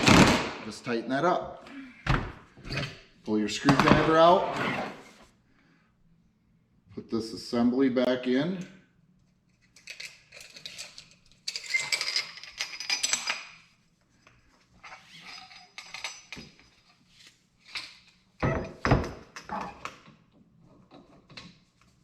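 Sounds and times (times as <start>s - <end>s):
metal tools clinking and rattling: 9.6s - 13.7s, 14.8s - 17.0s, 17.6s - 18.3s.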